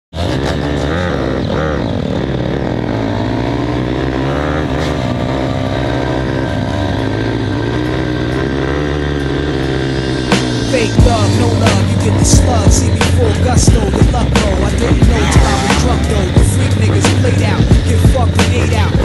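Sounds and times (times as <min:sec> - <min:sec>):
dirt bike engines revving: 0:00.1 - 0:19.0
steady low drone: 0:00.4 - 0:19.0.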